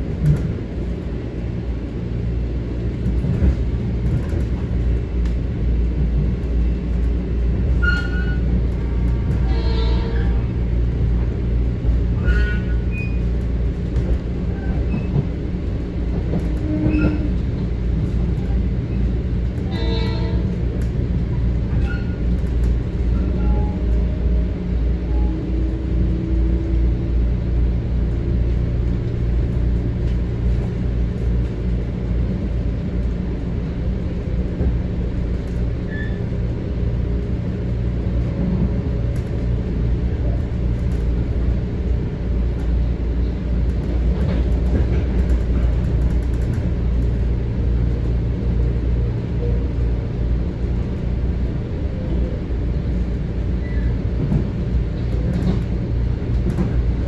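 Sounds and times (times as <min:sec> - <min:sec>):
train wheels rumbling: 0:00.0 - 0:57.0.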